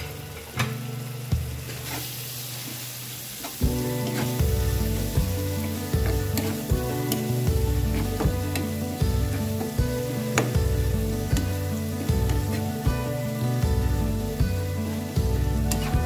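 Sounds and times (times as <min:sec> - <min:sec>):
onions sizzling in hot oil: 0:00.0 - 0:16.0
background music: 0:03.5 - 0:16.0
spatula stirring in pan: 0:03.6 - 0:13.8.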